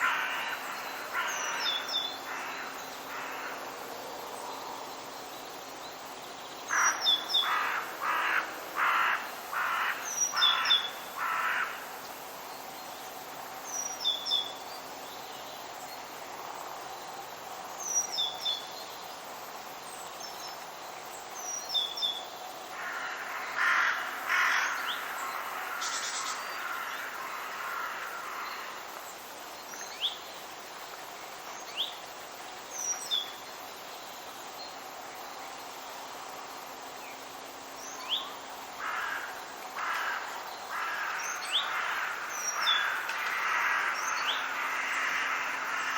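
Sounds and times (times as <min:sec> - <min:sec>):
crow cawing: 0:00.0 - 0:03.6, 0:06.7 - 0:11.8, 0:22.8 - 0:28.7, 0:38.8 - 0:45.9
steady background hiss: 0:00.0 - 0:45.9
songbird chirping: 0:11.9 - 0:22.6, 0:23.2 - 0:45.9.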